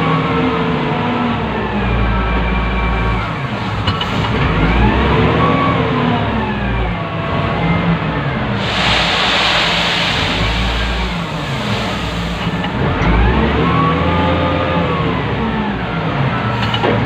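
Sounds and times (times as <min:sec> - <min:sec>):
diesel engine revving: 0:00.0 - 0:17.0.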